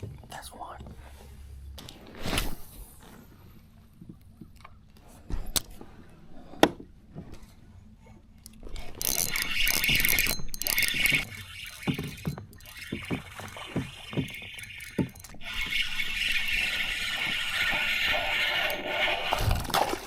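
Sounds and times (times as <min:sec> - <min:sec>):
gear knocking and clicking: 0:09.0 - 0:15.4.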